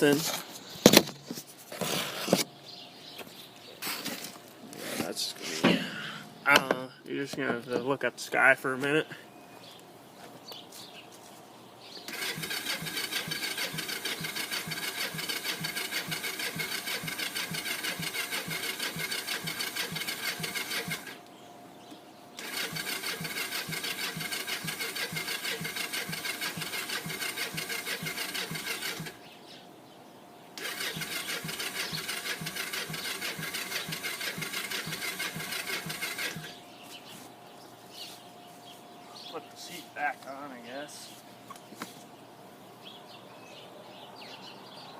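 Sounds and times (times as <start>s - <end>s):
electric starter cranking engine: 12.1s - 21.3s, 22.4s - 29.2s, 30.6s - 36.6s.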